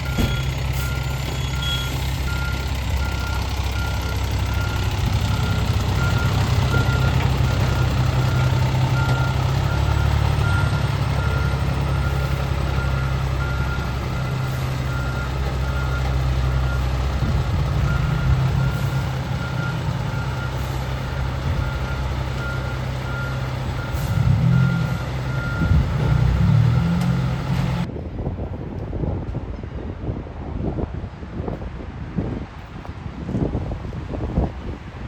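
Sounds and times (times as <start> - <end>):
reversing alarm beeping: 0.0 - 16.9, 17.9 - 27.0
truck engine humming: 0.0 - 27.9.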